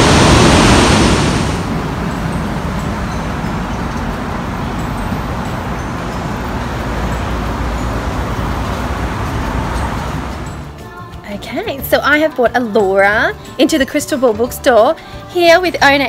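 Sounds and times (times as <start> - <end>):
waterfall roaring: 0.0 - 10.8.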